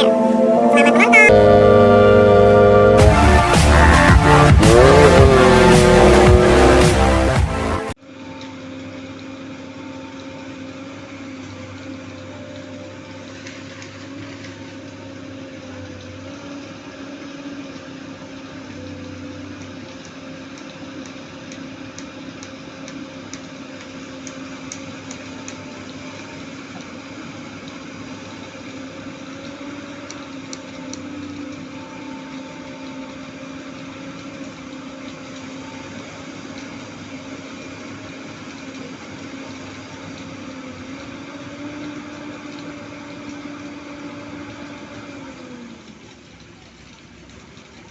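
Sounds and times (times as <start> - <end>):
diesel engine running: 1.4 - 7.9.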